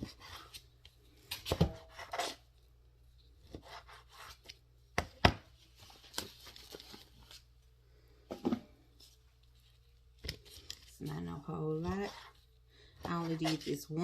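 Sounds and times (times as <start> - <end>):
knife slicing and scraping: 1.3 - 2.5, 3.4 - 4.6.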